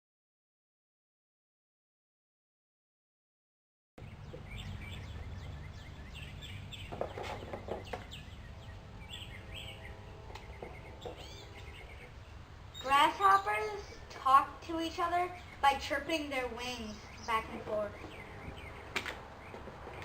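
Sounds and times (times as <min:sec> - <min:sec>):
low steady rumble: 0:04.0 - 0:20.0
small birds chirping: 0:04.0 - 0:20.0.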